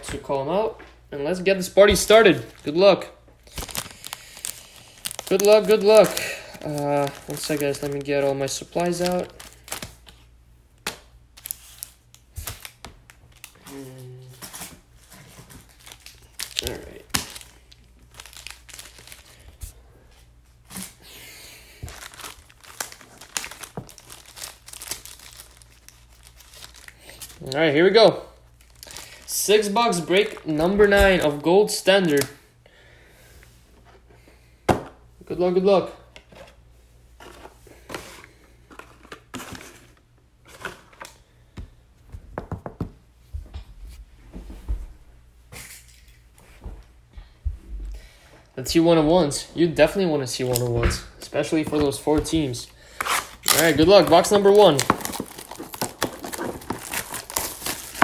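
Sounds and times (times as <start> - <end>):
plastic packaging crinkling and tearing: 3.4 - 10.3, 11.3 - 19.7, 21.8 - 32.3, 52.9 - 58.0.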